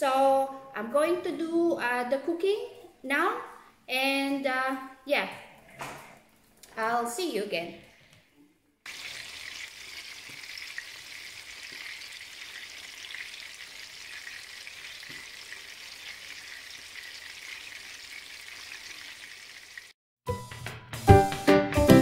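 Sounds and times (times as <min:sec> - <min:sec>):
burger patties sizzling in oil: 0:08.9 - 0:20.0.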